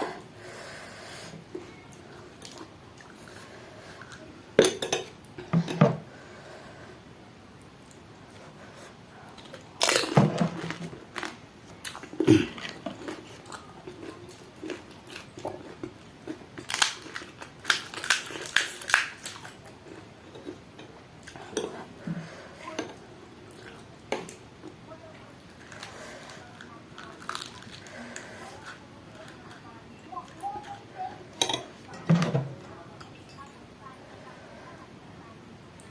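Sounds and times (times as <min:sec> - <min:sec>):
soft chewing: 0:00.0 - 0:07.0, 0:07.6 - 0:35.0
puri shells crunching: 0:14.0 - 0:19.6, 0:25.7 - 0:27.9.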